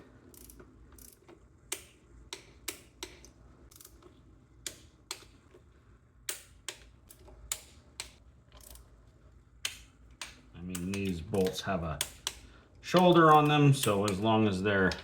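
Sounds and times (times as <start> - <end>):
torque wrench clicking: 0.3 - 5.4, 6.2 - 8.9, 9.6 - 15.0.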